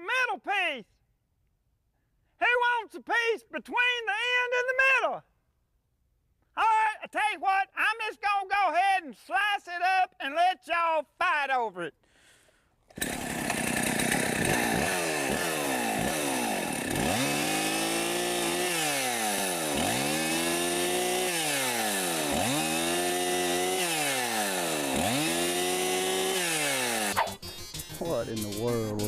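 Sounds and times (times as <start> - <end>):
chainsaw cutting: 12.8 - 27.7.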